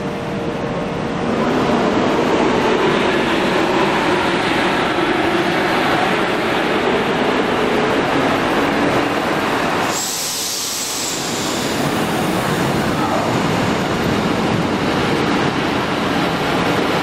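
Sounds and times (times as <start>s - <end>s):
diesel train engine and wheels: 0.0s - 17.0s
high hiss: 9.8s - 12.5s.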